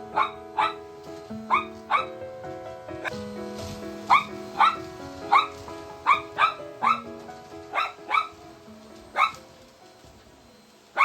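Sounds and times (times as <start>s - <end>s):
dog barking: 0.0s - 0.9s, 1.5s - 2.2s, 4.1s - 7.1s, 7.7s - 8.4s, 9.1s - 9.5s
background music: 0.0s - 11.0s.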